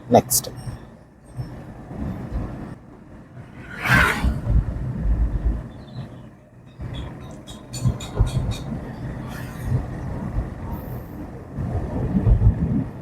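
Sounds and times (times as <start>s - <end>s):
car road noise rumble: 0.0s - 13.0s
loud rushing whoosh: 3.4s - 5.6s.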